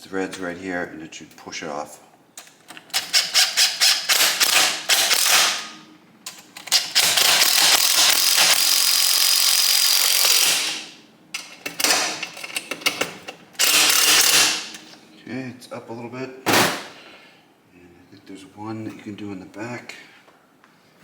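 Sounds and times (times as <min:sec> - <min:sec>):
ratchet wrench clicking: 0:02.9 - 0:05.6, 0:06.7 - 0:10.8, 0:13.6 - 0:14.6.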